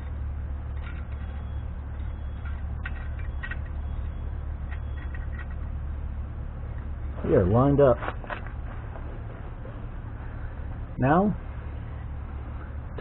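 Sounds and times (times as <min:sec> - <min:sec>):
steady low hum: 0:00.0 - 0:13.0
small metal parts clicking: 0:00.7 - 0:05.7.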